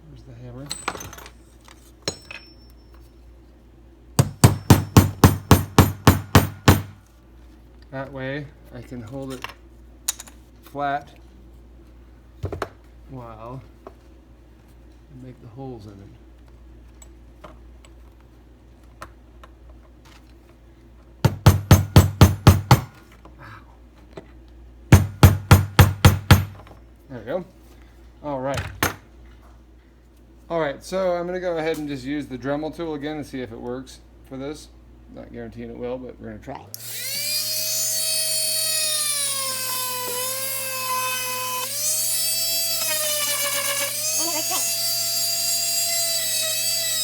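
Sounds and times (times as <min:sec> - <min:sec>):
hammer striking a nail: 0:04.2 - 0:07.0, 0:21.3 - 0:23.0, 0:24.9 - 0:26.6
rotary tool whining: 0:36.8 - 0:47.0.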